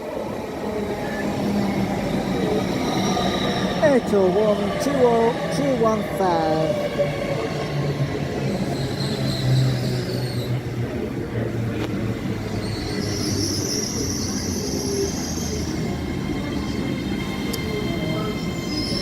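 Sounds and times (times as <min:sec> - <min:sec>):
train wheel squeal: 0:00.4 - 0:03.8, 0:07.0 - 0:10.8, 0:12.2 - 0:19.0.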